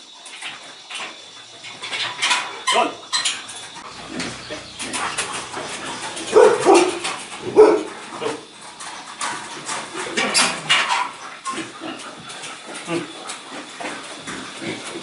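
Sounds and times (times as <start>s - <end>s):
dog barking: 5.0s - 8.4s.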